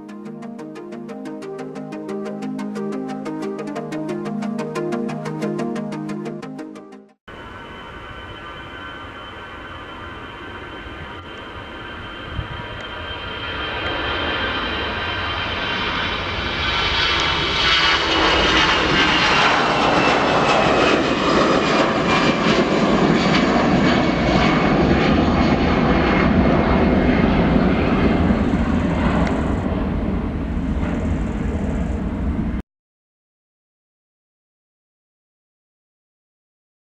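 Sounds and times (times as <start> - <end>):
jet engines at take-off: 7.3 - 32.6.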